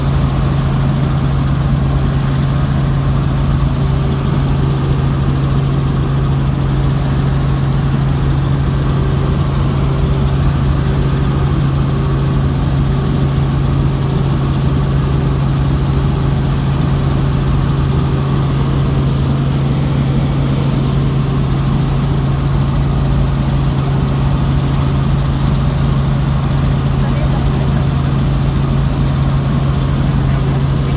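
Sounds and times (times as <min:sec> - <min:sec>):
helicopter engine and rotor noise: 0:00.0 - 0:30.9.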